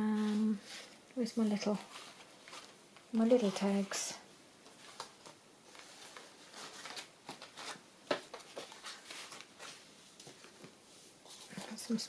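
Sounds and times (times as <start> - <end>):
paper rustling and tapping: 4.6 - 10.8.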